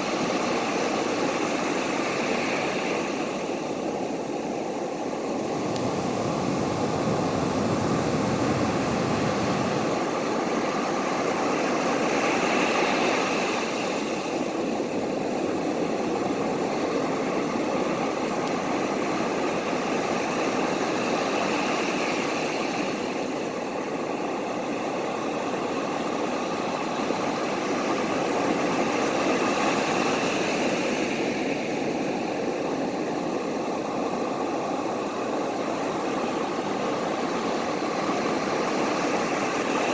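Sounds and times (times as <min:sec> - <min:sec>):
ocean waves rushing: 0:04.8 - 0:10.6.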